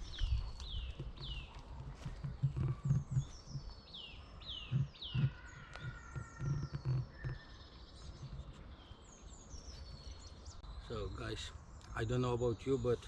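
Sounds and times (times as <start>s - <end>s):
soft low thumps: 0.0s - 8.6s
birds singing: 0.0s - 13.0s.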